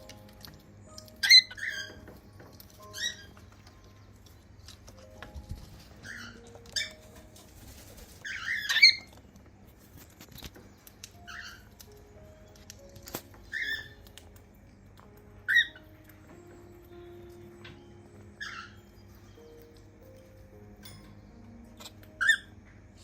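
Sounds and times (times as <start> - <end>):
cockatiels chirping: 0.0 - 9.2, 10.4 - 14.3, 15.4 - 19.8, 21.8 - 22.5.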